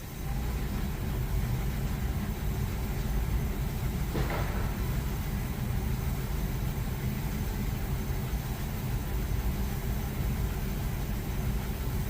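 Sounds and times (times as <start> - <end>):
clothes dryer drum rumbling: 0.0 - 12.0.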